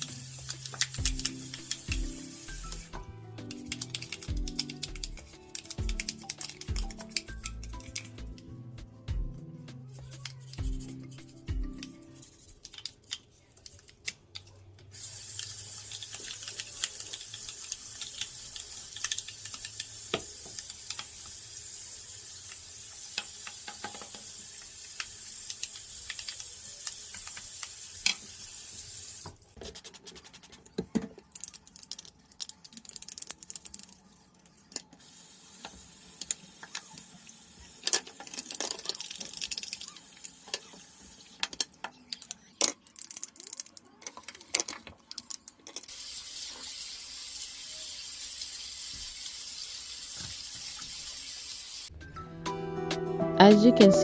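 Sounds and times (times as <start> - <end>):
water running from tap: 0.0 - 8.1, 15.0 - 29.4, 35.0 - 41.5, 45.9 - 51.9.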